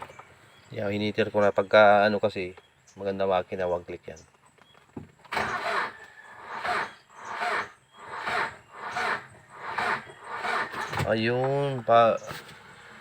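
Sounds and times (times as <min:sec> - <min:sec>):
starter motor cranking engine slowly: 0:05.3 - 0:11.1.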